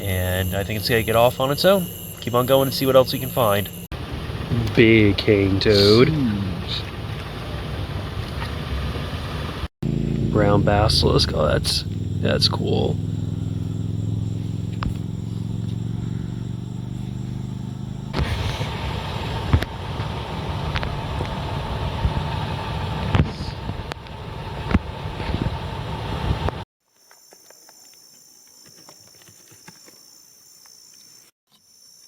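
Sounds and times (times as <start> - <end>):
insects chirping at night: 0.0 - 8.0, 10.7 - 23.0, 26.9 - 32.0
car engine humming: 0.0 - 26.7
road and tyre noise: 0.0 - 26.7.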